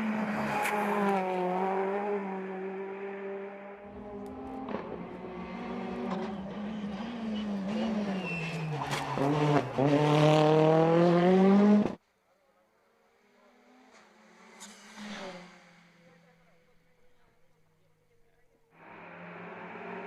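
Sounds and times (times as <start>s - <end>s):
racing car engine at full throttle: 0.0s - 12.0s, 18.8s - 20.0s.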